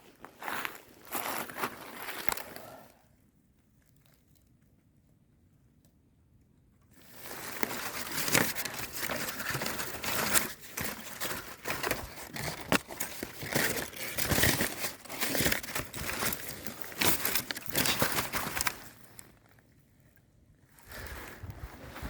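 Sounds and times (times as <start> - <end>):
debris crackling underfoot: 0.0 - 2.6, 7.0 - 19.6.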